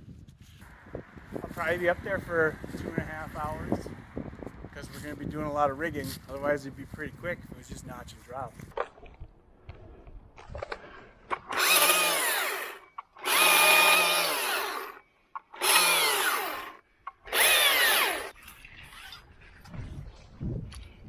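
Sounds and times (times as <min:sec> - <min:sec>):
electric power tool bursts: 0:11.5 - 0:15.0, 0:15.6 - 0:18.3.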